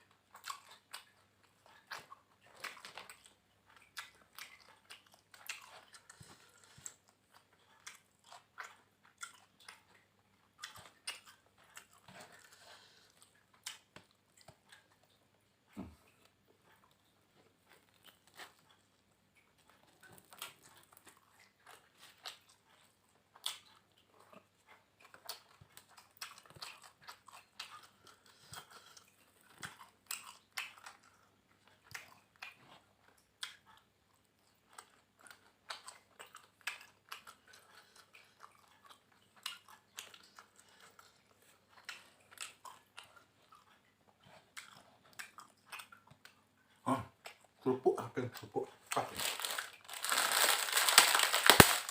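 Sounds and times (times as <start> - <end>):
crisp chewing crunches: 0.0 - 15.2, 19.5 - 33.8, 48.5 - 51.9.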